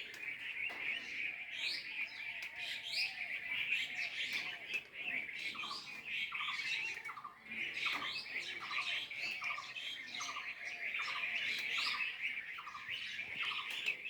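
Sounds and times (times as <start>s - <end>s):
small birds chirping and twittering: 0.0s - 14.0s.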